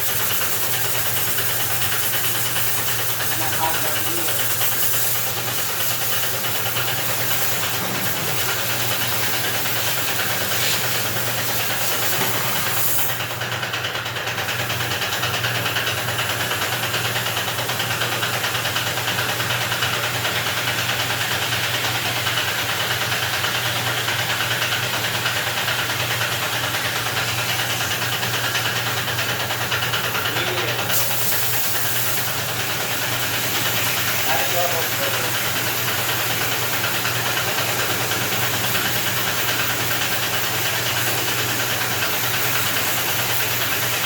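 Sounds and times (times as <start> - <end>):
hiss of pressurised flow: 0.0 - 13.4, 26.8 - 44.0
machine motor running: 0.5 - 20.5, 25.7 - 44.0.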